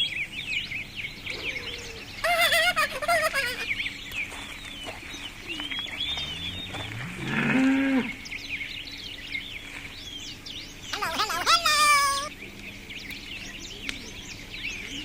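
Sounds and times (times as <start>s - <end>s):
birds chirping: 0.0s - 15.0s
cow mooing: 6.2s - 8.2s.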